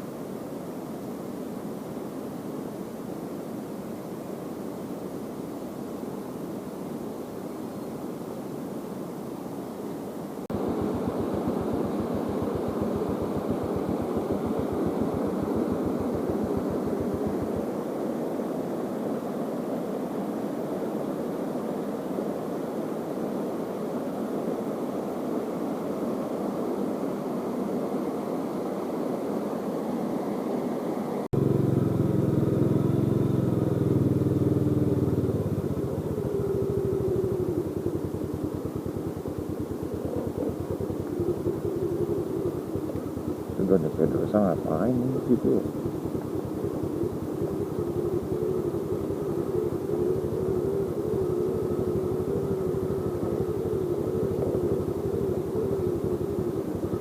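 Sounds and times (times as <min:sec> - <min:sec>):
motorcycle engine running: 0:10.5 - 0:17.7, 0:31.4 - 0:57.0.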